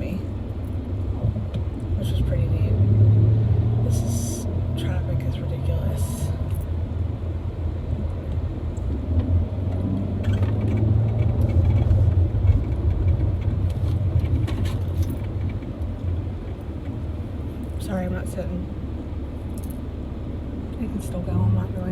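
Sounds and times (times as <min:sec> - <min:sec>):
car engine rumble: 0:00.0 - 0:21.9
road noise: 0:00.0 - 0:21.9.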